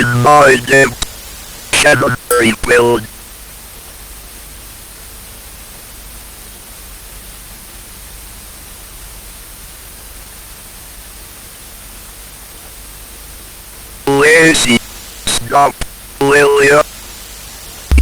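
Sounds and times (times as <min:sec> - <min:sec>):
static hiss: 0:00.0 - 0:03.4, 0:13.8 - 0:18.0.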